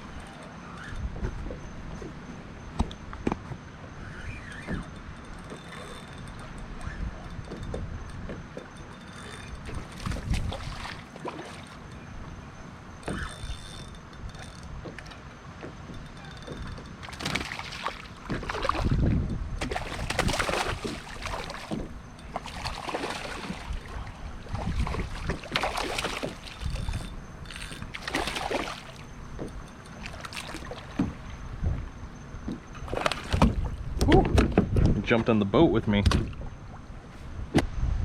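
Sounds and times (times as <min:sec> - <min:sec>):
water splashing: 0:09.7 - 0:11.9, 0:17.0 - 0:31.3, 0:32.8 - 0:33.8
fish thrashing at surface: 0:19.6 - 0:29.0.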